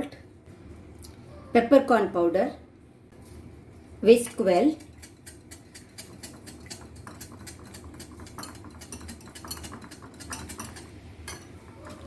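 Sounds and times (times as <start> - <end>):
whisk clicking against bowl: 4.3 - 12.0.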